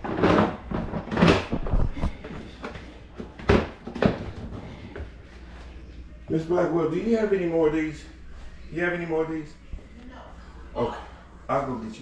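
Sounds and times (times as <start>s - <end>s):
knocks and clatters of handling: 0.0s - 5.2s.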